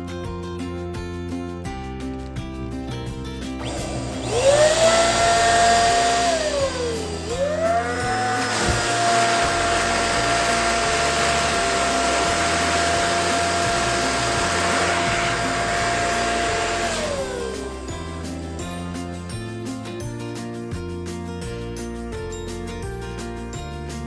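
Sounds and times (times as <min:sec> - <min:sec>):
electric pump motor whine: 0:03.6 - 0:18.9.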